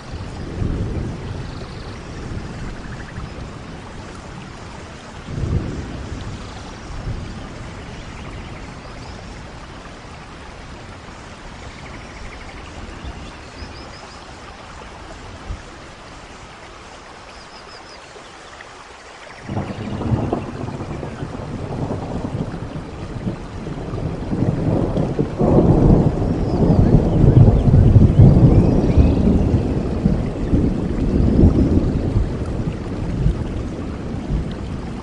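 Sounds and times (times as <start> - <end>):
thunder rumbling: 0.0 - 16.1, 19.4 - 35.0
steady rain falling: 0.0 - 35.0.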